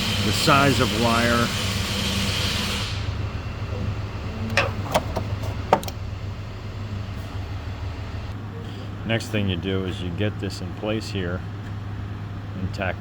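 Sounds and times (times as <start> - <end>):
low engine hum: 2.8 - 13.0
sharp clicks and knocks: 4.5 - 6.0.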